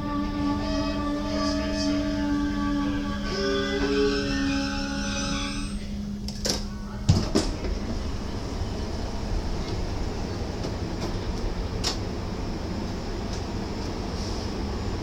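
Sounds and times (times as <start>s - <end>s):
train rumbling: 0.0s - 15.0s
train doors thudding shut: 6.2s - 8.0s.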